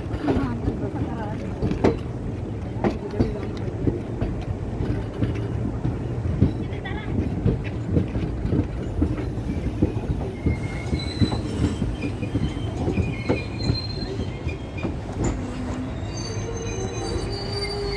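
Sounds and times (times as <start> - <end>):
train coach rumble: 0.0 - 17.9
brake squeals: 9.3 - 17.9.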